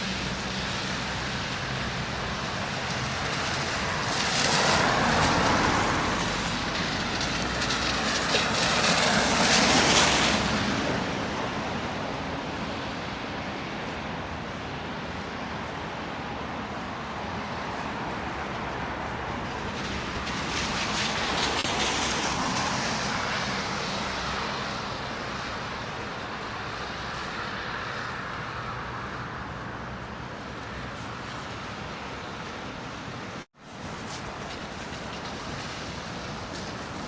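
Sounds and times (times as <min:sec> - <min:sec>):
vehicle passing close by: 0:00.0 - 0:13.2
traffic hum: 0:00.0 - 0:37.0.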